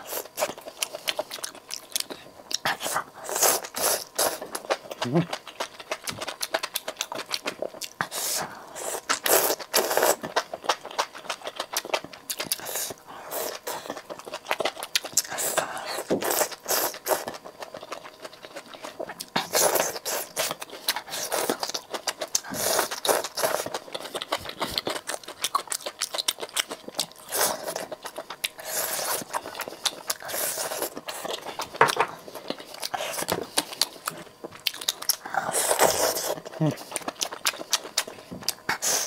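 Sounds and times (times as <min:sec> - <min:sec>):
close chewing with wet smacks: 0:00.2 - 0:08.2, 0:09.0 - 0:39.0.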